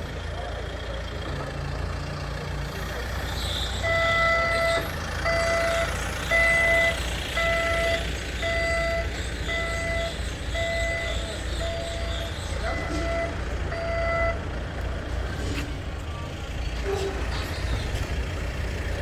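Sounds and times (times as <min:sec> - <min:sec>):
engine idling: 0:00.0 - 0:19.0
reversing alarm beeping: 0:03.4 - 0:16.6.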